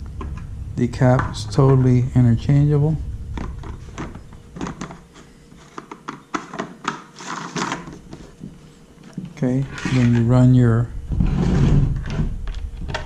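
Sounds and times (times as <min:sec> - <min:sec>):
plastic scraping rubs: 0:03.3 - 0:08.4, 0:11.1 - 0:13.0.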